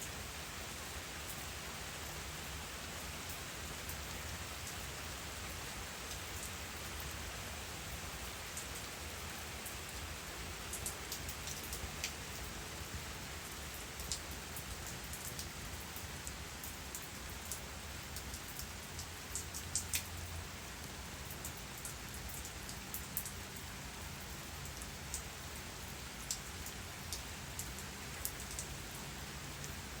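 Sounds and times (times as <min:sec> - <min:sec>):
water drips on surfaces: 0:01.2 - 0:30.0.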